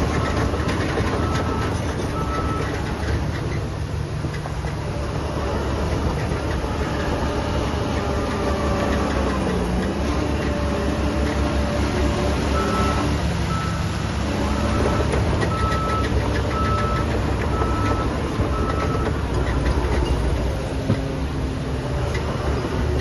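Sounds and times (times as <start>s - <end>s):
heavy machinery diesel engines rumbling: 0.0s - 23.0s
reversing alarm beeping: 12.6s - 13.9s, 14.5s - 19.2s.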